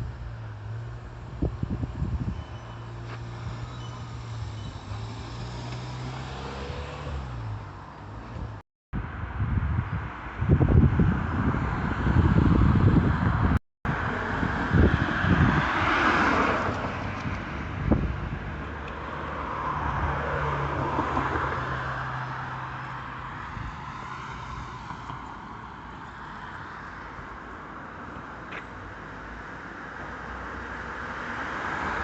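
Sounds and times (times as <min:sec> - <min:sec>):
cars passing: 0:00.0 - 0:32.0
wind buffeting microphone: 0:01.1 - 0:02.6, 0:08.3 - 0:18.7, 0:23.2 - 0:24.0.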